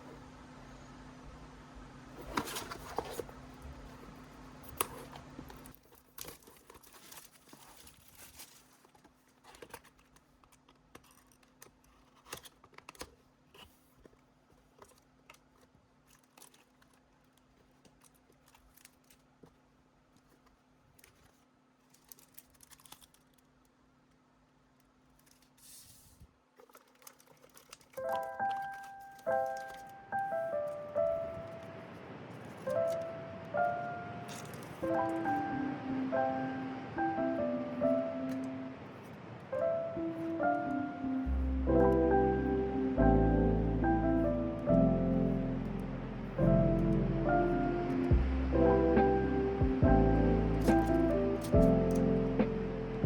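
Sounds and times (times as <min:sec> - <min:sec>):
packaging crinkling: 0:02.2 - 0:24.2, 0:24.8 - 0:35.6
plastic wrap tearing: 0:04.7 - 0:13.1, 0:20.3 - 0:23.7, 0:26.6 - 0:35.4
low hum: 0:41.2 - 0:53.0.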